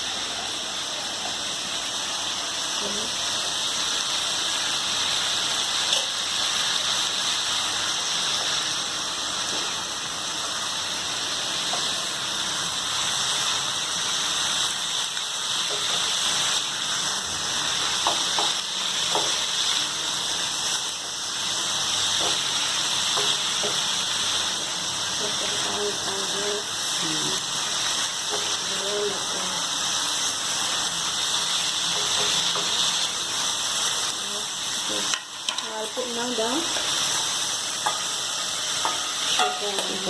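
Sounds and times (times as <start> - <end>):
vegetables sizzling in a frying pan: 0.0 - 40.0.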